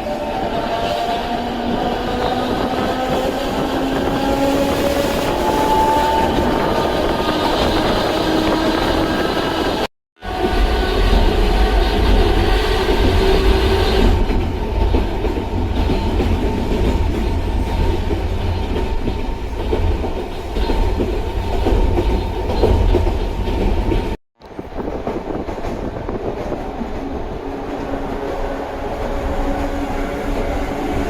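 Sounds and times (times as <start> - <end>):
clickety-clack of track: 0.0 - 31.0
electric train rumbling on rails: 0.0 - 31.0.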